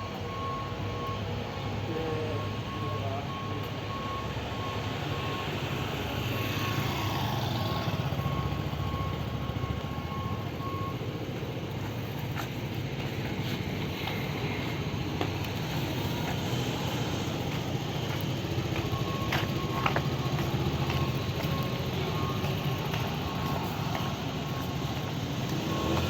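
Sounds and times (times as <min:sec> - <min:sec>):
cars passing: 0:00.0 - 0:26.0.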